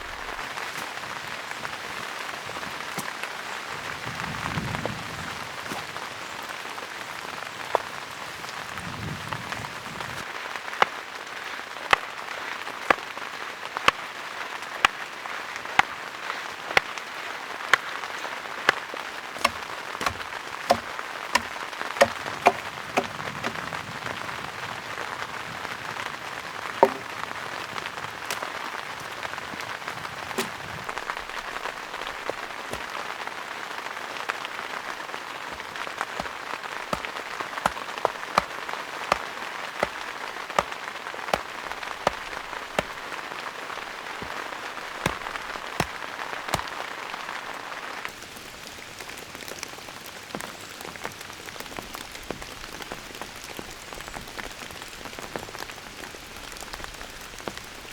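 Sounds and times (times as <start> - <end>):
steady rain hiss: 0.0 - 57.9
raindrops tapping on a surface: 18.6 - 24.0, 26.6 - 33.1, 48.1 - 57.9.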